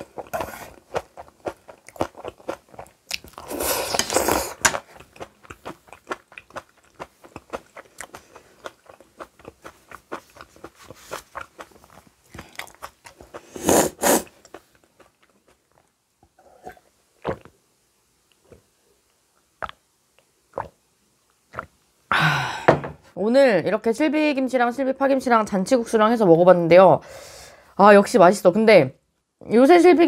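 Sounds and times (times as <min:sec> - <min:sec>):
chewing crunchy food: 0:00.0 - 0:13.6, 0:14.2 - 0:17.6.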